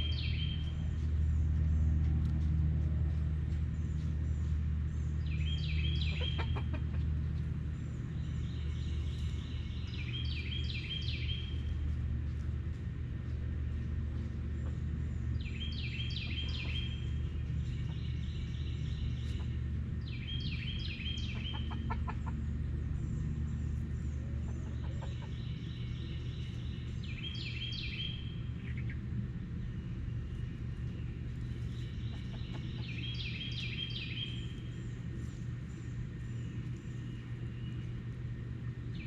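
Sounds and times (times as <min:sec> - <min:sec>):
steady low rumble: 0:00.0 - 0:39.0
chickens clucking: 0:06.0 - 0:07.5, 0:21.1 - 0:22.7, 0:24.3 - 0:25.7, 0:30.8 - 0:33.6.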